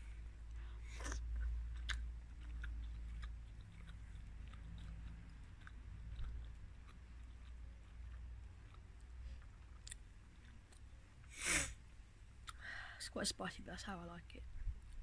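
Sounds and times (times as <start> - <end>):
person chewing food: 0.0 - 11.3
wet mouth clicks: 0.8 - 10.9, 12.4 - 12.6.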